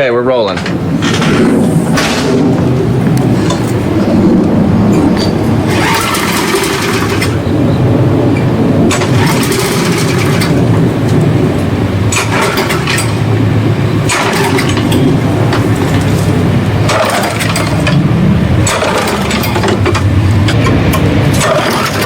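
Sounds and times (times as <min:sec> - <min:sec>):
steady low rumble: 0:00.0 - 0:22.0
lawnmower pull-start cranking: 0:05.2 - 0:07.3, 0:16.9 - 0:18.0, 0:21.4 - 0:22.0.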